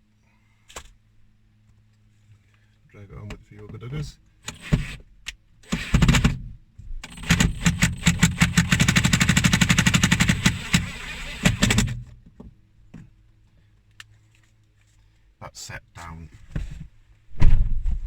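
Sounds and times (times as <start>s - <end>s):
impact driver hammering: 5.7s - 6.4s, 7.0s - 12.1s.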